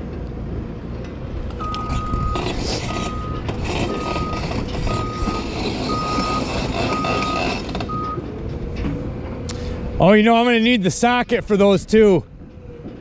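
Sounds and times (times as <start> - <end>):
constant low rumble: 0.0 - 13.0
vehicle backup alarm beeping: 1.6 - 8.2.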